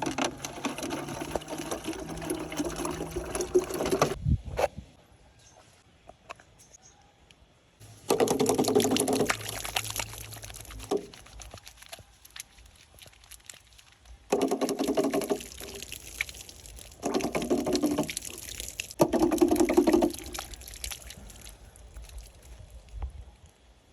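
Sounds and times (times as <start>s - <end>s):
liquid pouring into container: 0.0s - 4.2s, 7.8s - 22.8s.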